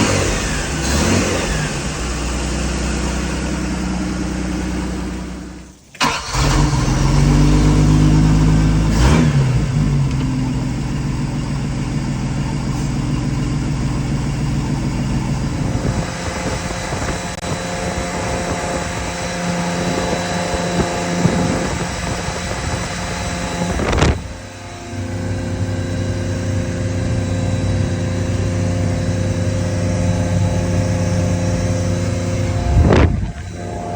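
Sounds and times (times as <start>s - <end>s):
boat engine running: 7.0s - 33.9s.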